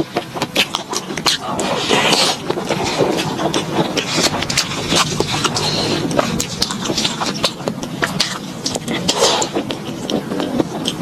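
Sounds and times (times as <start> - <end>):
crunchy chewing: 0.0 - 11.0
wet mouth clicks: 0.0 - 11.0.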